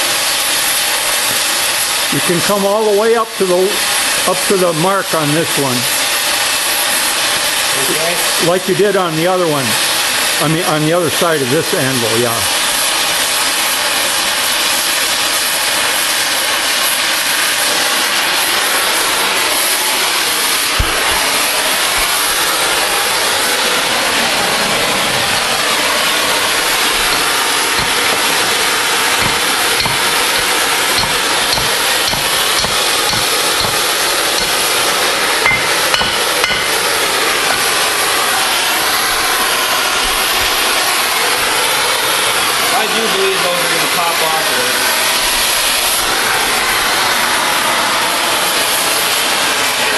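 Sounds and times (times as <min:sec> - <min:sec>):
cutting torch hissing: 0:00.0 - 0:49.9
torch sharp pops: 0:01.2 - 0:01.8, 0:19.6 - 0:23.8, 0:24.8 - 0:41.6.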